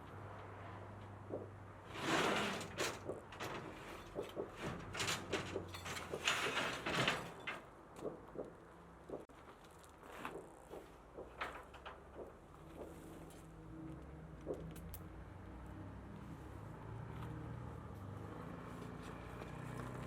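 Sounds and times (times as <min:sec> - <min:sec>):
steel parts scraping: 0:01.9 - 0:07.7
metallic knocks: 0:02.9 - 0:09.2.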